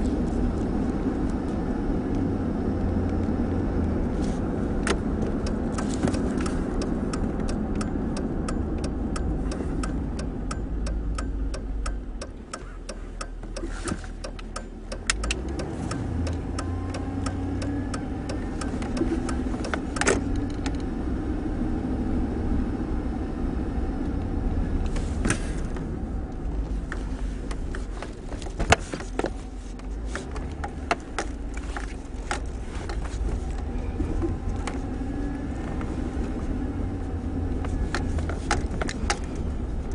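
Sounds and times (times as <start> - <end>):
road noise: 0.0 - 39.9
truck engine from inside cab: 0.0 - 39.9
rapid regular ticking: 6.5 - 20.0.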